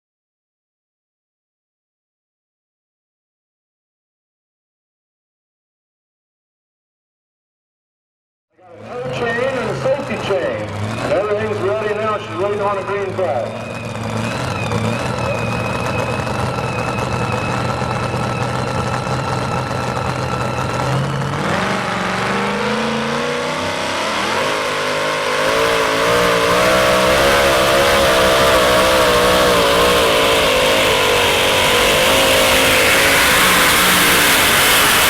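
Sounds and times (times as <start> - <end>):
truck engine revving: 8.7 - 35.0.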